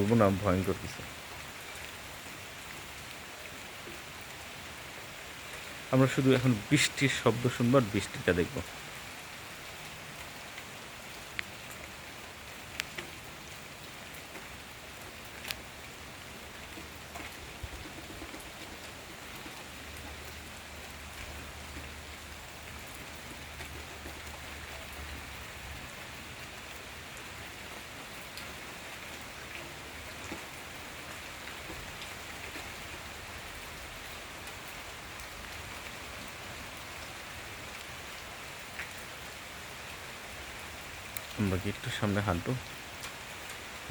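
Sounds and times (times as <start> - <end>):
steady rain: 0.0 - 43.9
raindrops ticking: 9.8 - 43.9.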